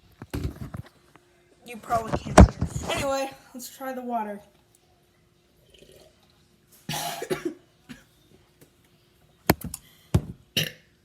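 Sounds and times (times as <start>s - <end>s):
person choking and coughing: 6.9s - 8.1s, 10.5s - 10.9s.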